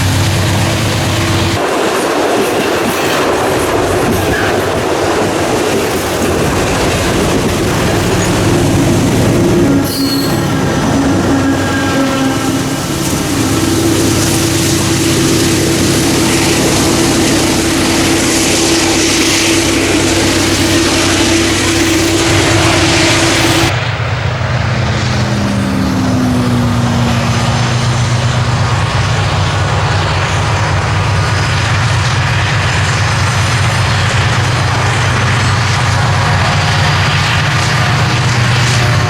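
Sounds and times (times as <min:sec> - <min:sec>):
diesel train engine drone: 0:00.0 - 0:39.0
wheel and rail noise: 0:00.0 - 0:39.0
hiss: 0:11.5 - 0:23.7.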